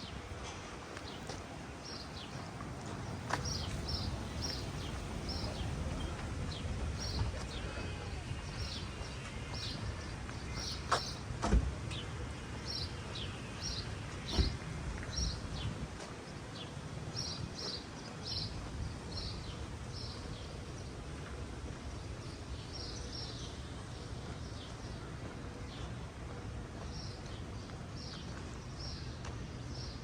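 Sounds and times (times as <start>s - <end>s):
low outdoor rumble: 0.0s - 16.9s
small birds chirping: 1.0s - 11.2s.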